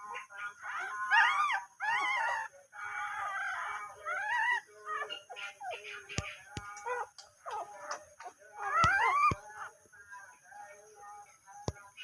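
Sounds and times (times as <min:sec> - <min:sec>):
dog whimpering: 0:00.1 - 0:05.8, 0:08.6 - 0:09.4.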